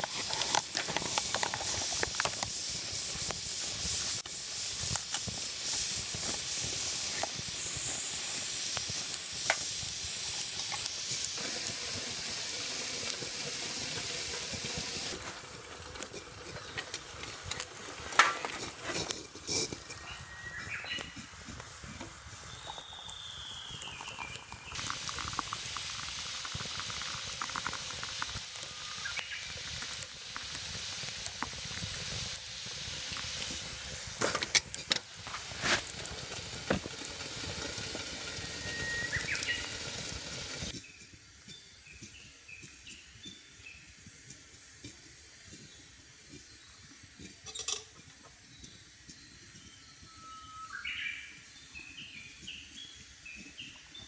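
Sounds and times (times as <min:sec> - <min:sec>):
loud sizzling hiss: 0:00.0 - 0:47.8
small birds chirping: 0:19.9 - 0:21.4, 0:22.4 - 0:24.8, 0:28.6 - 0:29.7, 0:38.6 - 0:40.1, 0:50.6 - 0:54.0
bird calling: 0:38.6 - 0:39.8.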